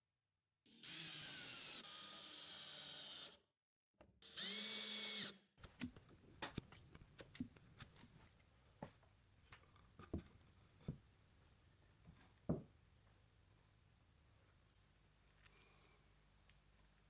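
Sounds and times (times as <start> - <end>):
power drill driving screws: 0.7 - 3.4, 4.2 - 5.4.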